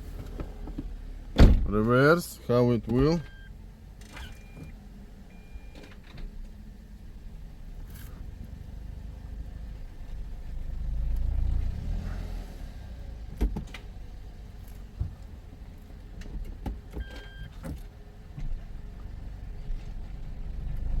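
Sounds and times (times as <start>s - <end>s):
car engine rumbling: 0.0s - 21.0s
short electronic beep: 3.2s - 3.5s
clicks and knocks in cabin: 13.3s - 13.9s, 16.1s - 18.7s.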